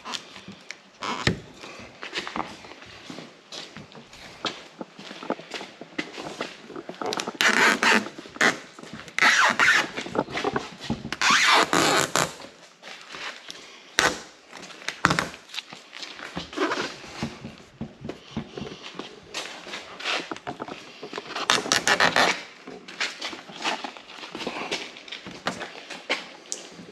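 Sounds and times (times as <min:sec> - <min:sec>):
hands scraping plastic and tape: 0:03.8 - 0:26.9.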